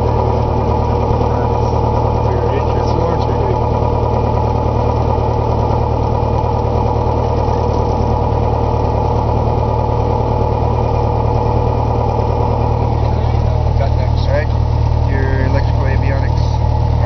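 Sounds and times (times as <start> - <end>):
piston engine idling: 0.0 - 17.0.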